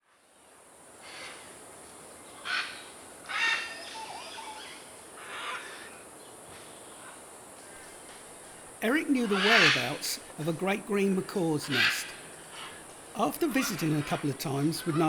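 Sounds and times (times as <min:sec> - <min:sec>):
macaw squawking: 0:02.4 - 0:05.9, 0:08.8 - 0:15.0.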